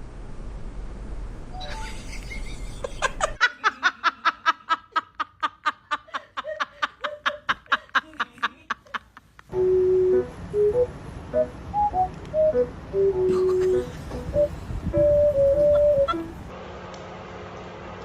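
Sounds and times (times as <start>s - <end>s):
person laughing: 1.6s - 9.5s, 13.3s - 14.5s, 15.4s - 16.4s.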